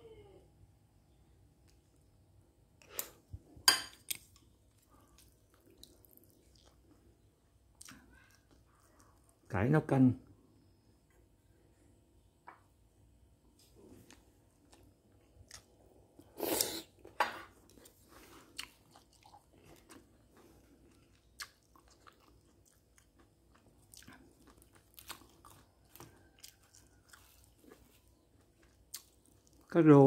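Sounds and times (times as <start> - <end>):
person chewing food: 2.8 - 9.5, 13.6 - 29.7.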